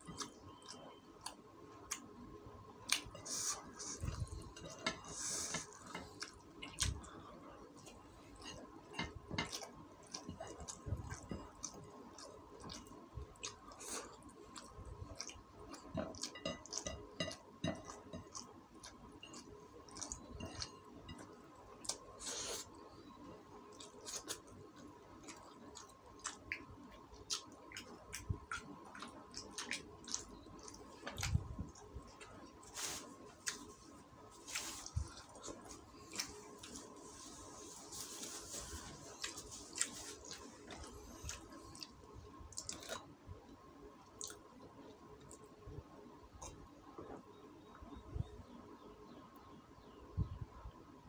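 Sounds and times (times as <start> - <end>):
wet chewing and lip smacks: 23.7 - 32.5, 39.2 - 43.1, 44.0 - 44.4.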